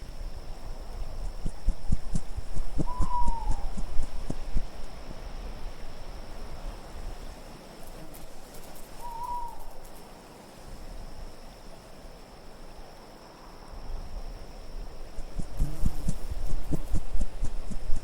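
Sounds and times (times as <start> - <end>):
low wind: 0.0 - 18.0
owl hooting: 1.8 - 4.8, 9.0 - 9.8.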